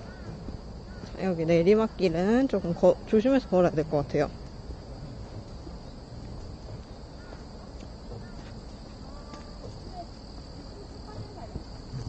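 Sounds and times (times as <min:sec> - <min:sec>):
insects droning: 0:00.0 - 0:12.0
footsteps and rustling: 0:04.2 - 0:12.0.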